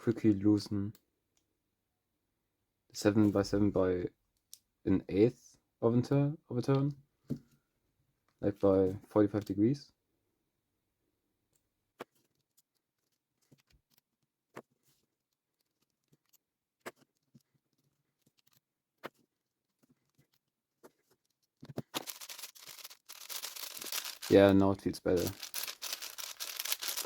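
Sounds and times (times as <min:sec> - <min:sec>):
fast clicking of cube layers turning: 0:12.0 - 0:27.0.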